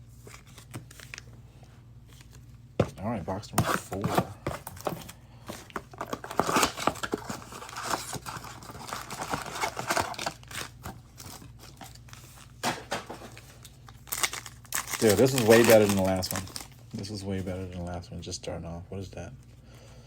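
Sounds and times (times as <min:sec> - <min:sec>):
foil wrappers ripped and crinkled: 0:05.7 - 0:16.9
cardboard box being torn open: 0:06.0 - 0:11.4.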